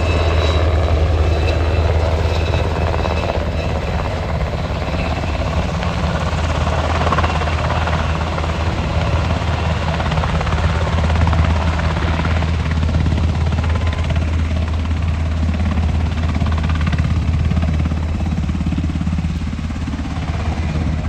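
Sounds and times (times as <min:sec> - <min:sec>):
engine droning: 0:00.0 - 0:12.2.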